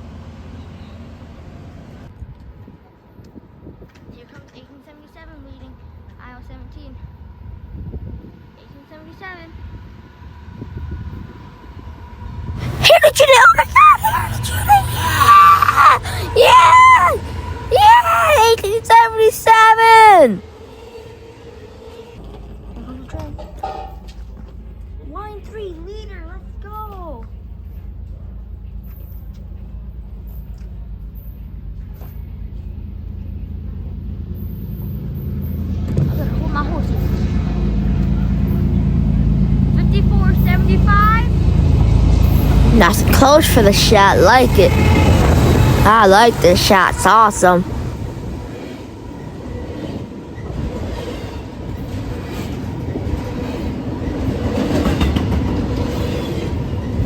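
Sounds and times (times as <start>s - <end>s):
diesel locomotive approaching: 0.0s - 3.7s, 5.1s - 57.0s
train wheels clattering: 48.8s - 57.0s.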